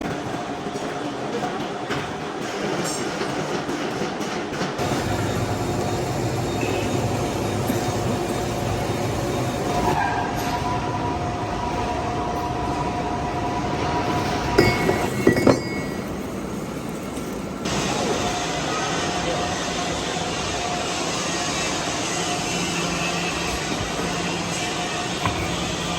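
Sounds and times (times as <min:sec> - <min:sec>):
metal lathe whining: 0:04.8 - 0:10.0.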